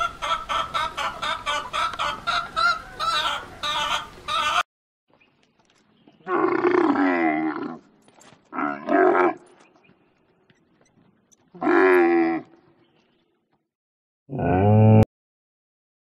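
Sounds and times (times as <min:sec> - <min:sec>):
camel calling: 0:10.6 - 0:12.8.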